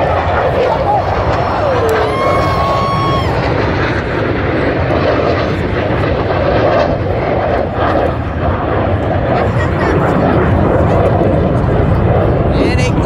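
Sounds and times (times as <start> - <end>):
jet engines flying past: 0.0 - 13.0.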